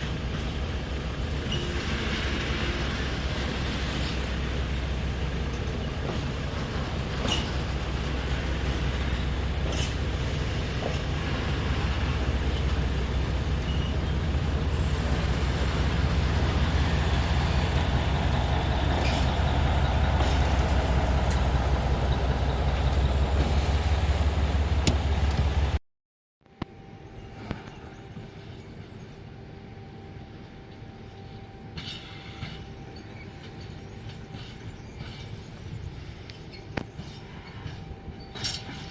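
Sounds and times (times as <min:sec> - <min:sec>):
diesel engine humming: 0:04.3 - 0:25.8.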